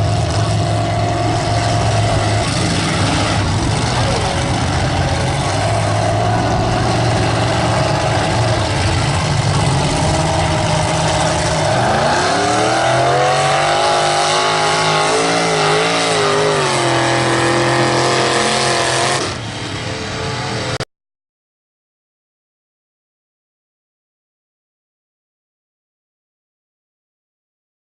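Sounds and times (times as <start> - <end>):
truck engine revving under load: 0.0 - 20.1.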